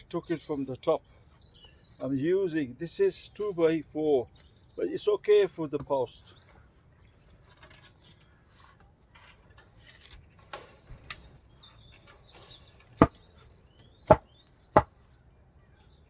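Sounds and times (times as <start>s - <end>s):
sharp strikes on wood: 14.0s - 14.9s.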